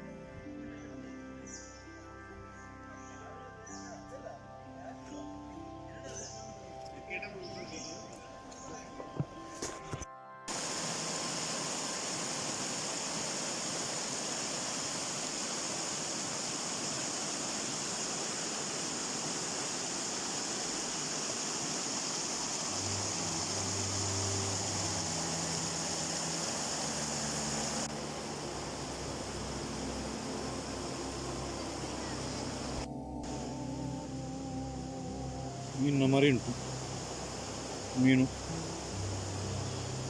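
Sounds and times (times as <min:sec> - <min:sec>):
stream water rushing: 0:10.5 - 0:33.5, 0:35.6 - 0:40.0
low hum: 0:22.4 - 0:40.0.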